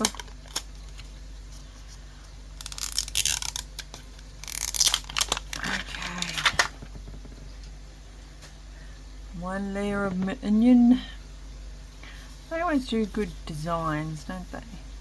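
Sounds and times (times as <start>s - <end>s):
plastic wrapper tearing: 2.6s - 6.8s
plastic crinkling: 2.6s - 7.1s.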